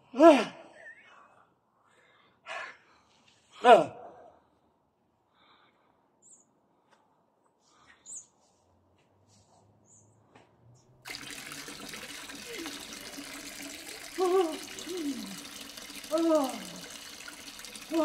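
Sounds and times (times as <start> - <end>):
faint bird chirps: 6.2 - 6.6, 7.8 - 8.4
steady rushing water: 11.1 - 18.0
falling voice-like sounds: 12.4 - 16.9.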